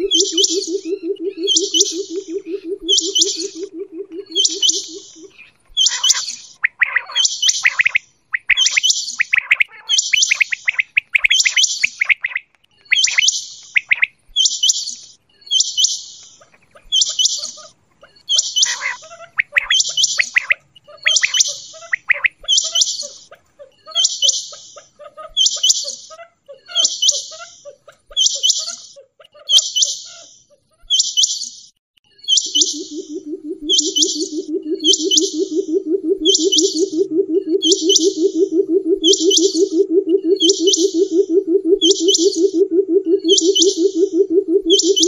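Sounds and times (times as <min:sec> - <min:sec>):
low rapid pulsing call: 0:00.0 - 0:05.5, 0:32.3 - 0:45.0
quick low chirps: 0:00.0 - 0:05.6, 0:32.3 - 0:45.0
quail high call: 0:00.0 - 0:07.9, 0:32.4 - 0:45.0.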